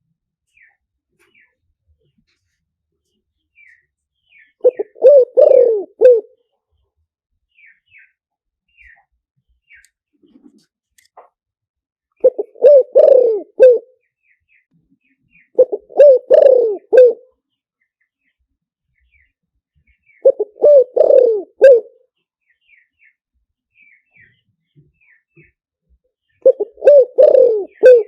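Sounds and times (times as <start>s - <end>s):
small birds chirping: 0.4s - 11.3s, 12.1s - 28.0s
dove cooing: 4.6s - 6.4s, 12.2s - 13.9s, 15.6s - 17.3s, 20.2s - 22.0s, 26.4s - 28.0s.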